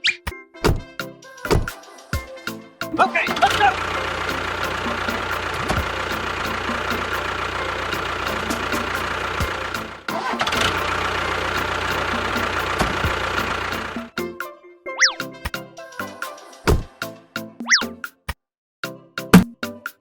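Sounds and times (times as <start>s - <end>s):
tractor engine running: 3.2s - 14.2s.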